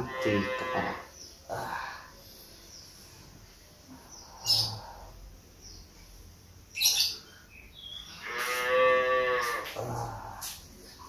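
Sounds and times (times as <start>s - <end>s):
cow mooing: 0.0s - 1.0s, 8.2s - 9.6s
birds chirping and calling: 0.0s - 11.0s.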